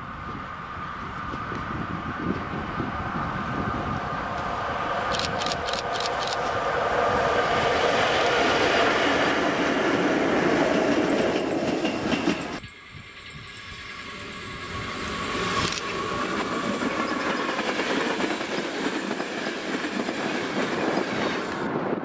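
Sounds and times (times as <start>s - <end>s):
distant train approaching: 0.0s - 22.0s
electric locomotive passing: 0.0s - 22.0s
clickety-clack of train wheels: 3.6s - 6.6s, 8.2s - 21.7s.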